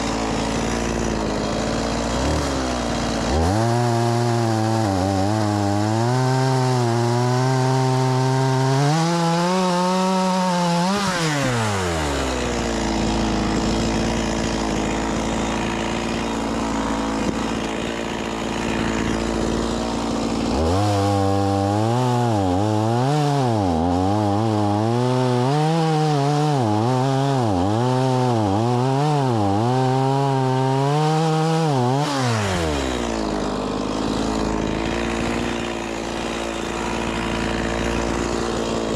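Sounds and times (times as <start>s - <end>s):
chainsaw cutting logs: 0.0s - 38.9s
chainsaw idling: 0.0s - 38.9s.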